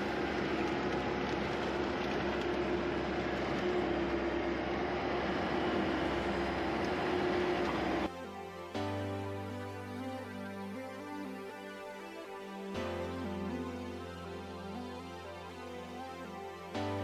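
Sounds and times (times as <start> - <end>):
skid steer engine running: 0.0 - 8.1.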